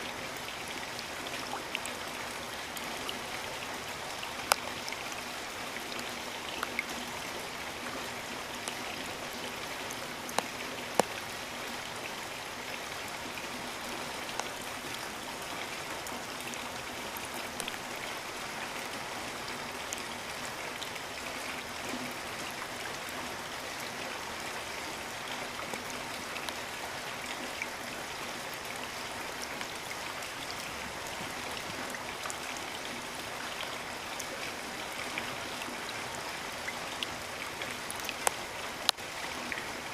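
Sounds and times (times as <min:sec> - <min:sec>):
raindrops ticking close by: 0:00.0 - 0:39.9.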